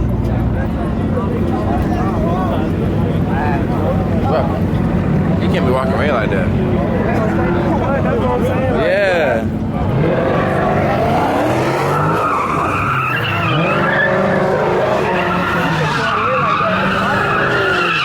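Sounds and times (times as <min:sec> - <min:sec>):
car engine revving: 0:00.0 - 0:18.0
tyres squealing: 0:09.9 - 0:18.0.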